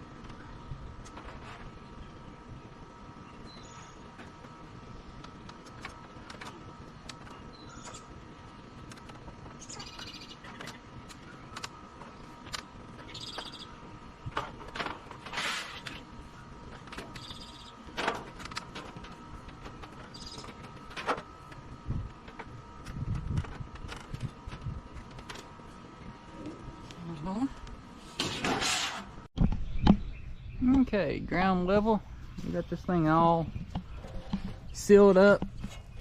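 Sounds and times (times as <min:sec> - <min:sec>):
steady hum: 0:00.0 - 0:36.0
bird chirps: 0:07.3 - 0:08.2, 0:09.6 - 0:12.3, 0:13.0 - 0:13.8, 0:17.1 - 0:17.8.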